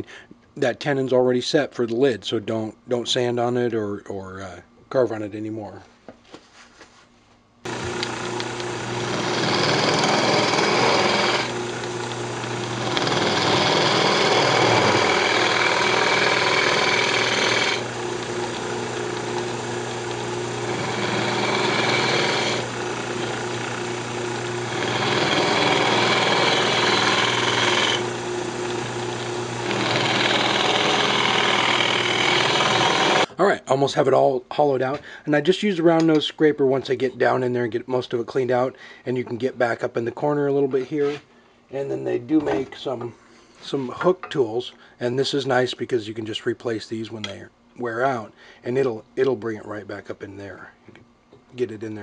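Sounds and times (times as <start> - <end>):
turning tool cutting wood: 7.7 - 33.3
wood lathe running: 7.7 - 33.3.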